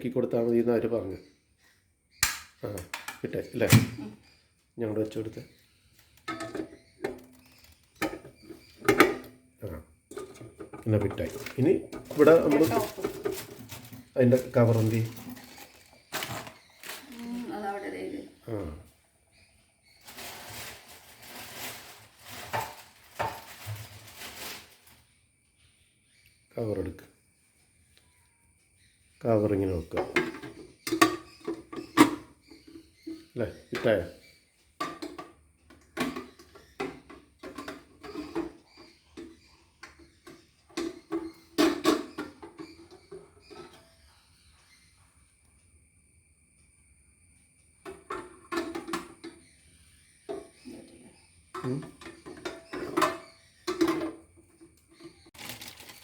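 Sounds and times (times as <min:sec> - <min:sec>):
plastic parts clicking and knocking: 0:02.2 - 0:04.0
plastic parts rustling and scraping: 0:05.1 - 0:17.5, 0:19.4 - 0:25.2, 0:34.8 - 0:44.3, 0:47.8 - 0:50.6, 0:51.5 - 0:56.0
plastic pieces knocking: 0:10.1 - 0:17.1.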